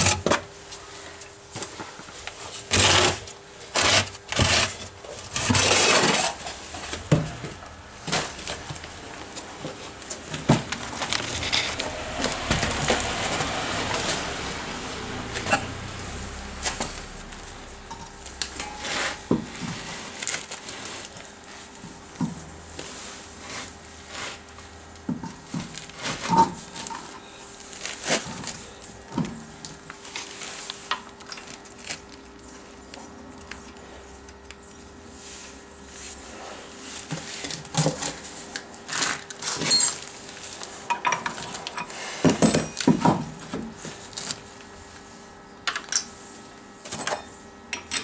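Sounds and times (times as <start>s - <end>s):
faint steady hum: 0.0s - 48.0s
rushing noise: 10.2s - 19.3s.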